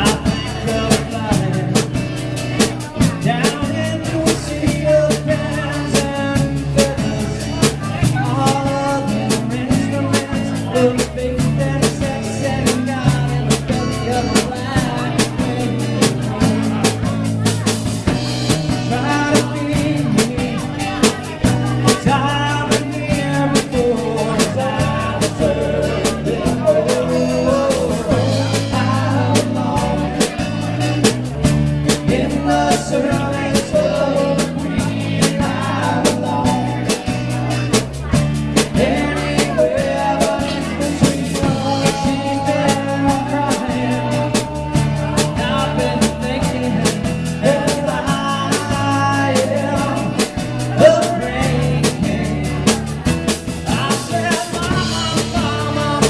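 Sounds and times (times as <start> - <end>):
live rock band playing: 0.0 - 56.0
person singing: 0.0 - 56.0.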